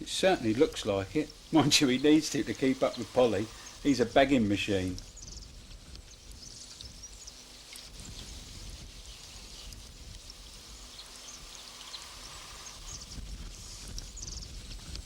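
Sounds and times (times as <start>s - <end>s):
running water rushing: 0.0s - 4.9s
wind rumbling on microphone: 3.8s - 15.0s.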